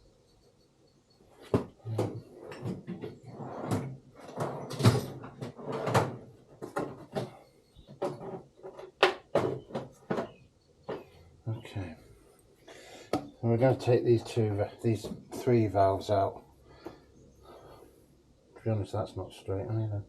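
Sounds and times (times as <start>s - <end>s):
metal parts and tools clattering: 1.7s - 11.2s.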